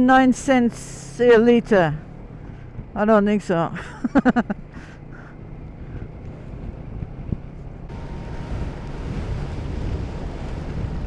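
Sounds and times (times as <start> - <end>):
motorcycle engine rumbling: 0.0 - 11.0
wind noise on microphone: 5.8 - 11.0.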